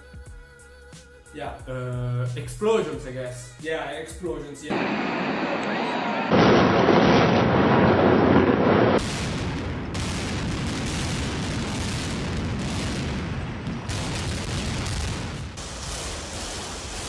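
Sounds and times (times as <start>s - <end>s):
explosion roar: 4.7s - 17.0s
loud explosion blast: 4.7s - 17.0s.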